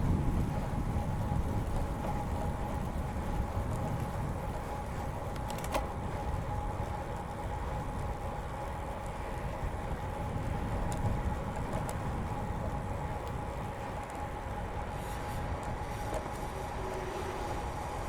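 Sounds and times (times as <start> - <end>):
bike tyres rumbling on pavement: 0.0 - 18.0
steady hum: 12.4 - 18.0.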